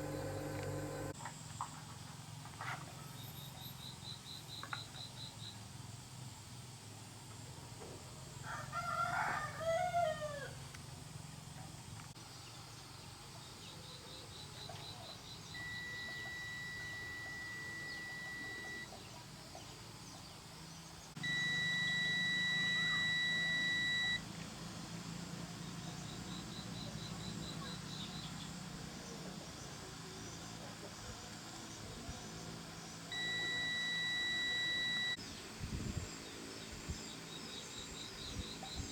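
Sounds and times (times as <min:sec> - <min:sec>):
low hum: 0:00.0 - 0:01.2
rooster crowing: 0:08.4 - 0:10.6
faint insect trilling: 0:13.8 - 0:19.0, 0:21.2 - 0:24.2, 0:32.2 - 0:35.2
high-pitched beeps: 0:15.6 - 0:18.9, 0:21.2 - 0:24.2, 0:33.1 - 0:35.2.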